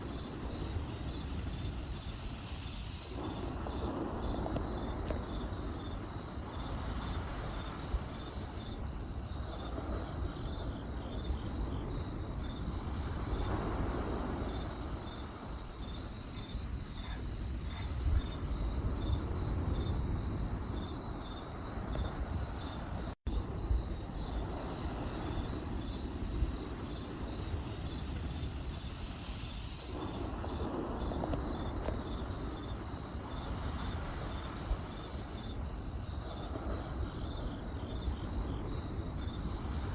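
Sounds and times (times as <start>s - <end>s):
campfire crackling: 0.0s - 39.9s
crickets chirping: 0.0s - 39.9s.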